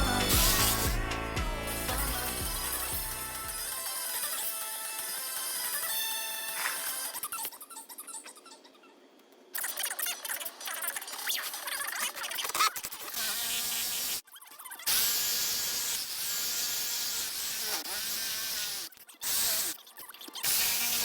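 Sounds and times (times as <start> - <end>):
jigsaw cutting wood: 0.0 - 7.2, 14.9 - 19.7, 20.4 - 21.0.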